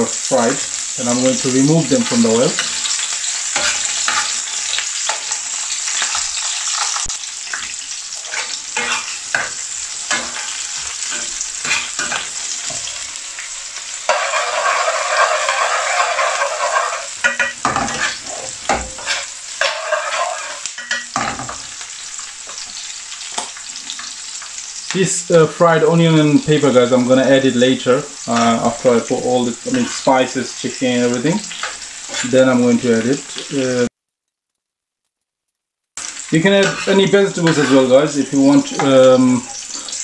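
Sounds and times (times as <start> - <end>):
vegetables sizzling in oil: 0.0 - 33.9, 36.0 - 40.0
metal spoon scraping pan: 1.3 - 6.9, 7.5 - 13.1, 13.8 - 21.7, 29.7 - 30.1, 31.5 - 32.5, 36.4 - 40.0.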